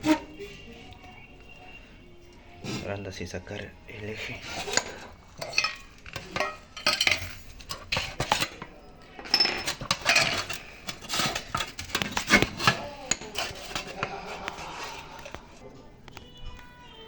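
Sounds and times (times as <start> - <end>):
metal parts clinking and scraping: 4.2 - 15.4.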